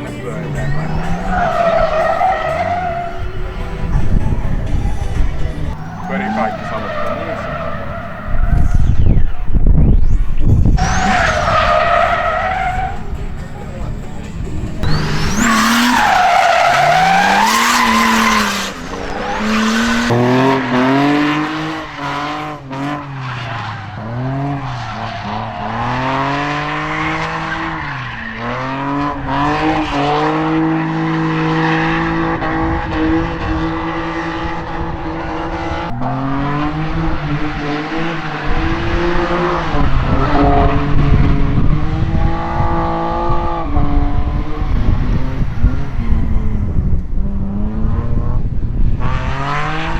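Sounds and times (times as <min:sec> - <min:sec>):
tyres squealing: 0:00.0 - 0:09.5, 0:10.8 - 0:31.8, 0:34.2 - 0:41.0
car engine revving: 0:00.0 - 0:49.9.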